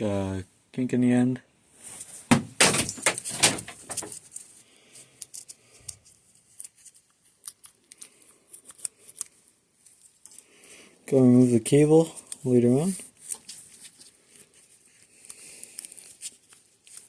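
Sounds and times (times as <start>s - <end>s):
small parts rustling and clattering: 2.0s - 10.5s, 12.1s - 17.0s.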